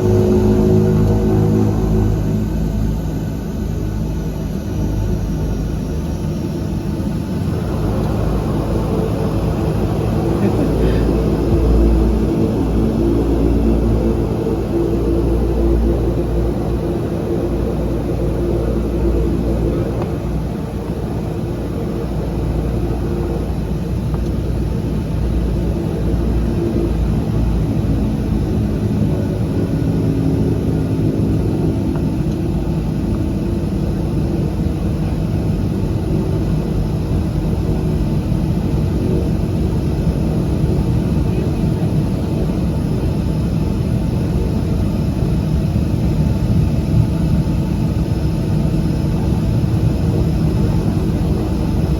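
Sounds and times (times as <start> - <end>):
turboprop engines droning in cabin: 0.0 - 51.9.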